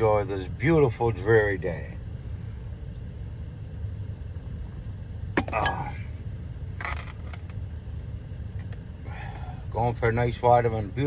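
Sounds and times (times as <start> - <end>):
car cabin rumble: 2.8 - 9.0.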